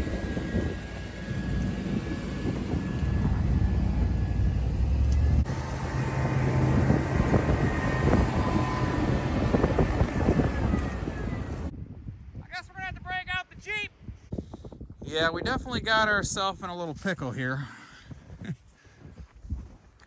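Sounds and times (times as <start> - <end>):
faint whine: 0.0 - 11.7
truck engine rumbling under load: 0.0 - 11.7.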